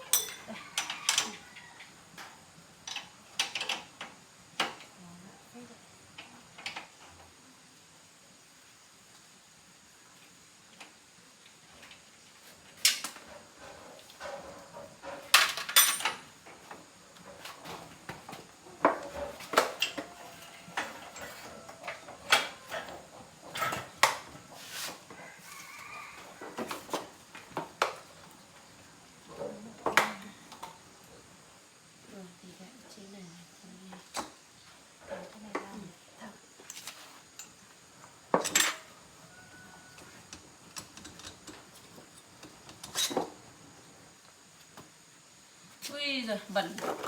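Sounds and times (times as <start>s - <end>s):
metal tools clinking and knocking: 0.0s - 1.4s, 15.0s - 16.3s.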